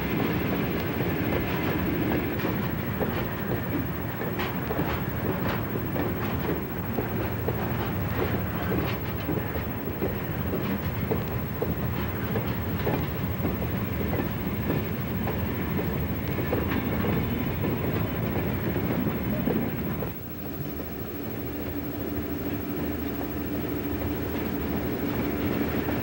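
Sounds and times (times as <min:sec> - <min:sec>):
train wheels rumbling and clicking: 0:00.0 - 0:26.0.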